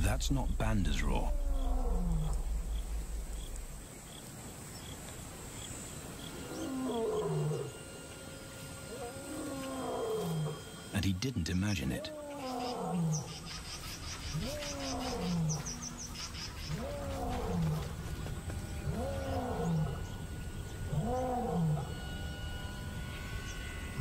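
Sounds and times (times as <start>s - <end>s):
lion roaring: 0.0s - 3.7s, 8.9s - 10.6s, 14.4s - 15.8s, 16.7s - 18.0s, 18.8s - 20.2s, 20.9s - 22.0s.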